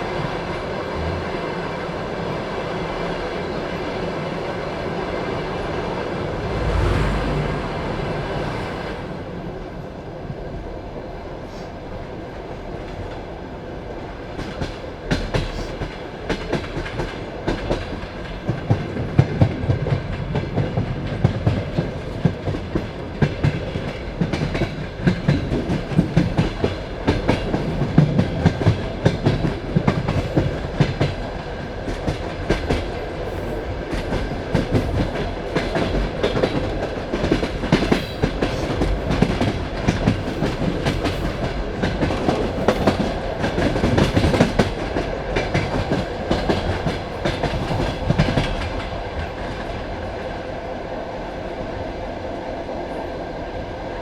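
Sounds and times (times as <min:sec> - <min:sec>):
train carriage rumble: 0:00.0 - 0:54.0.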